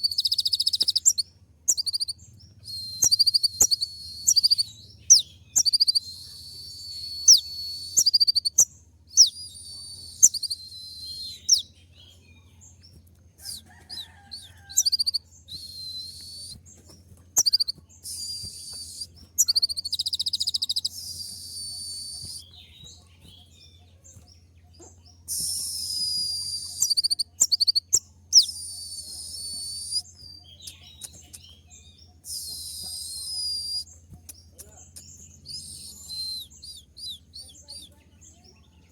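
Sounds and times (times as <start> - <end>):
sharp bird chirps: 0.0 - 12.3, 13.4 - 38.5
bird singing high-pitched song: 0.0 - 38.9.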